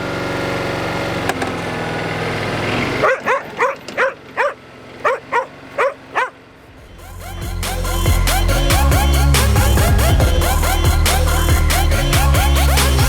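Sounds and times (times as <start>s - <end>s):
lawnmower engine running: 0.0s - 13.0s
dog barking: 3.0s - 6.4s.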